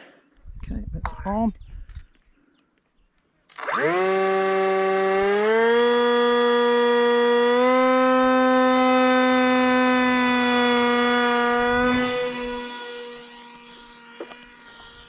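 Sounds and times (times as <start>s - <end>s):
model plane motor and propeller: 3.5s - 15.0s.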